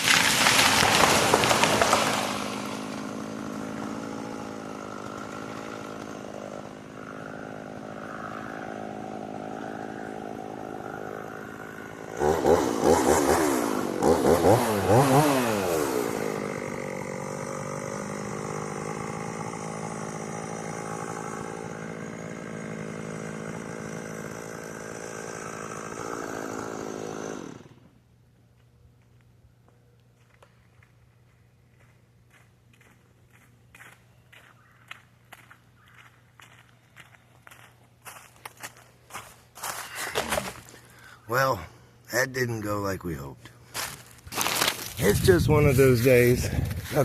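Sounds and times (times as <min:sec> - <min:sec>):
chainsaw running and revving: 0:00.0 - 0:28.0, 0:38.6 - 0:41.1, 0:43.8 - 0:47.0.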